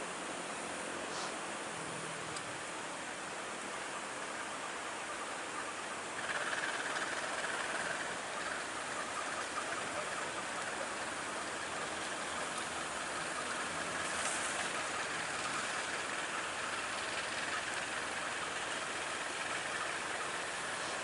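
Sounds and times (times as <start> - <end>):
passenger train running: 6.2 - 21.0.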